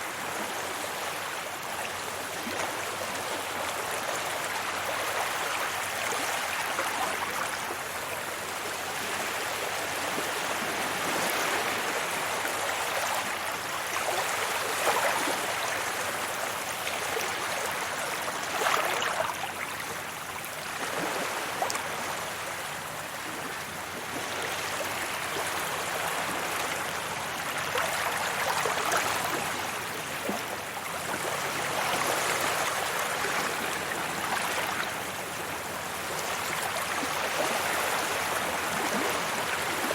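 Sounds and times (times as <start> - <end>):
waves washing onto beach: 0.0 - 39.9.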